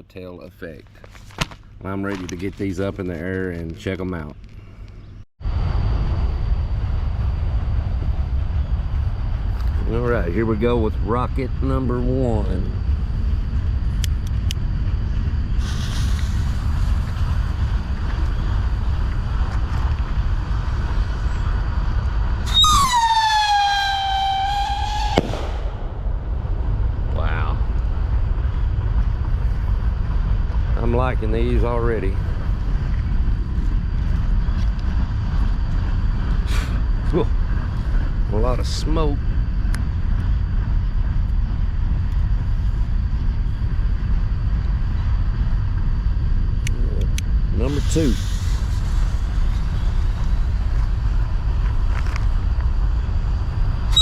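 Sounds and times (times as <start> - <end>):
steady low rumble: 0.0 - 54.0
firework rocket whistle: 15.5 - 17.4, 22.4 - 25.9, 47.6 - 50.6, 53.8 - 54.0
sharp bang: 22.5 - 27.1.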